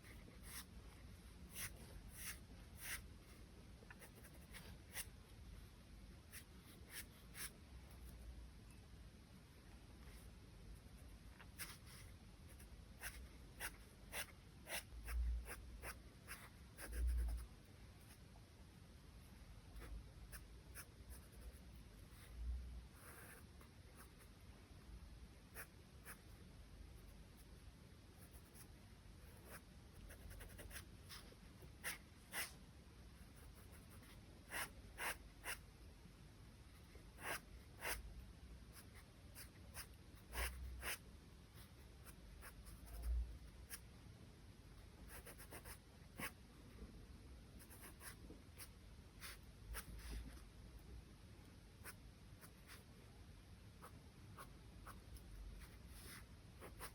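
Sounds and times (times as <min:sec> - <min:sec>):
pencil scratching on paper: 0:00.0 - 0:00.7, 0:01.5 - 0:03.1, 0:10.9 - 0:17.5, 0:23.0 - 0:24.2, 0:28.2 - 0:32.6, 0:33.3 - 0:35.6, 0:37.2 - 0:38.0, 0:38.7 - 0:41.0, 0:45.1 - 0:46.4, 0:55.6 - 0:56.9.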